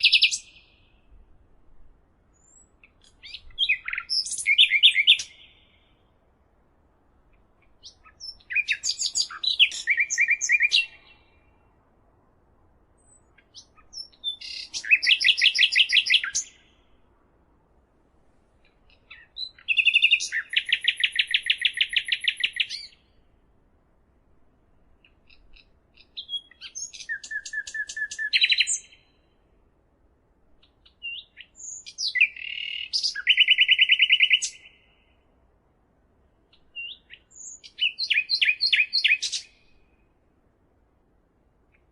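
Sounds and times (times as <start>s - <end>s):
songbird singing with trill: 0.0s - 1.2s, 2.3s - 6.1s, 7.3s - 11.7s, 13.0s - 17.0s, 18.6s - 23.2s, 25.0s - 29.3s, 30.6s - 35.2s, 36.5s - 40.0s.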